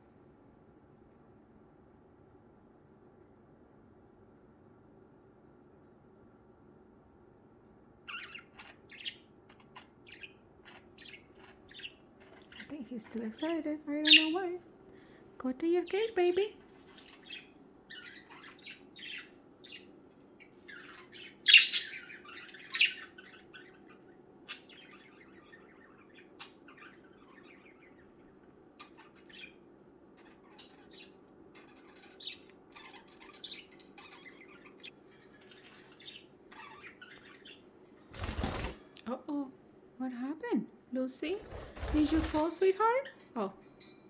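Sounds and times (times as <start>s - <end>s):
budgerigars chirping and squawking: 8.1s - 14.6s, 15.9s - 38.8s, 41.4s - 43.0s.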